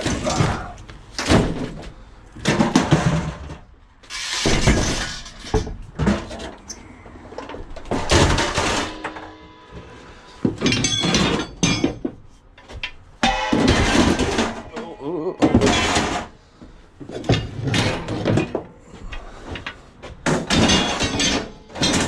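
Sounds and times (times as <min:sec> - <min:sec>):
scrap metal clattering crashes: 0:02.4 - 0:06.6, 0:07.8 - 0:12.2, 0:13.2 - 0:16.4, 0:20.2 - 0:22.0.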